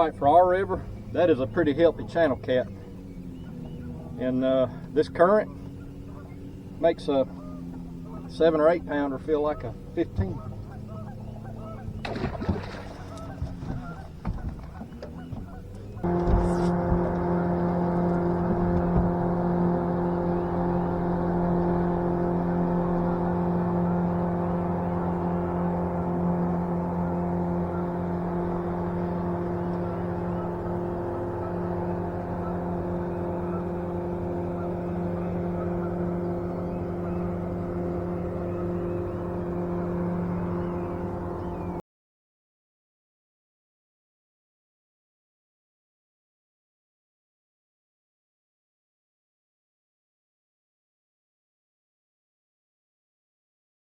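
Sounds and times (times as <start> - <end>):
boat motor humming: 0.0 - 41.8.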